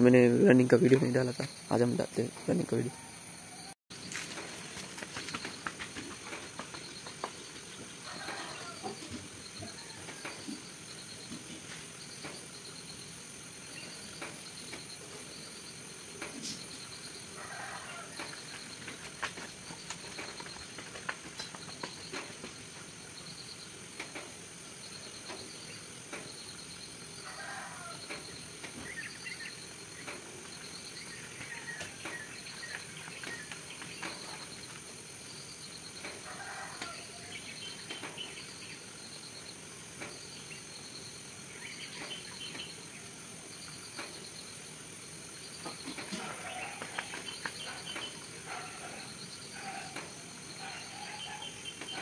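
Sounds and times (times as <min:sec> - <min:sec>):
birds chirping: 0:27.4 - 0:39.4, 0:40.1 - 0:43.1, 0:45.3 - 0:52.0.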